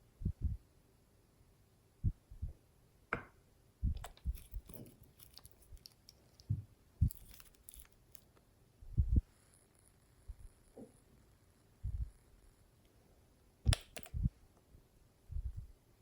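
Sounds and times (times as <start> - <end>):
crackly clicks: 3.9 - 8.5, 13.7 - 14.7.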